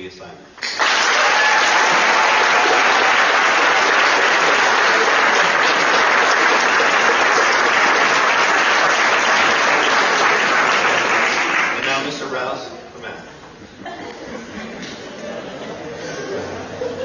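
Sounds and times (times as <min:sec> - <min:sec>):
audience applauding: 0:00.6 - 0:12.1.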